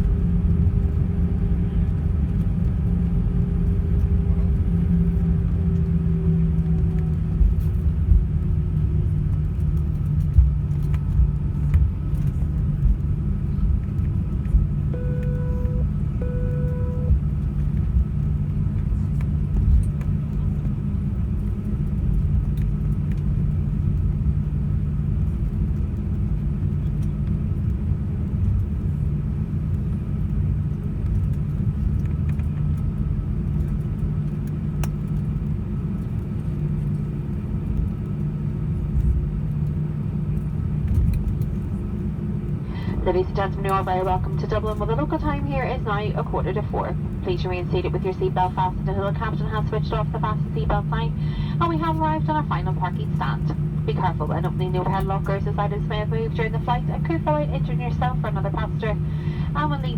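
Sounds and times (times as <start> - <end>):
airplane cabin rumble: 0.0 - 59.9
jet engine whine: 0.0 - 59.9
short beeps: 14.9 - 17.2.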